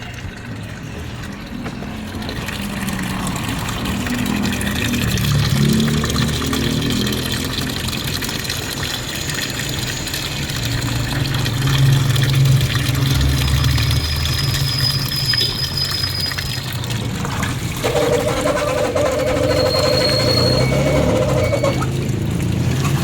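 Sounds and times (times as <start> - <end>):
water running into washing machine: 0.0 - 23.0.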